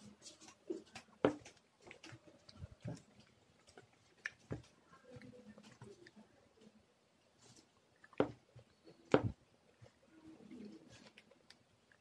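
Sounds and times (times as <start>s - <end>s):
person chewing rice: 0.0s - 6.2s.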